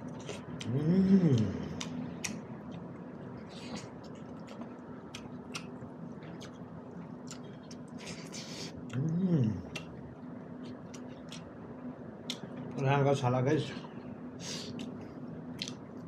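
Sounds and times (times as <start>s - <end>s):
man humming mmm: 0.6s - 1.9s, 8.4s - 9.8s
wet chewing: 1.3s - 10.0s, 15.6s - 15.8s.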